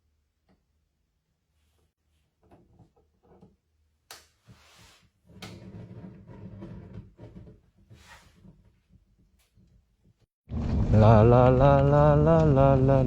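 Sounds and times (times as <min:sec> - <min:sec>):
objects knocking and scraping: 0:05.3 - 0:09.8
low rumbling: 0:10.5 - 0:13.0.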